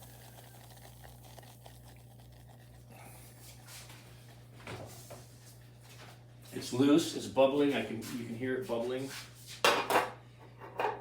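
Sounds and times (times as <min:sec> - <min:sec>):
roux bubbling in a pan: 0:00.0 - 0:05.4
steady low hum: 0:00.0 - 0:08.9.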